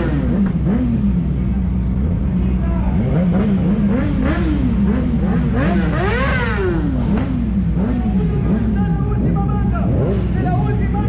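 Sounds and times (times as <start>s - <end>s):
racing motorcycles at full throttle: 0.0s - 11.0s
motorcycle passing close: 2.9s - 8.8s.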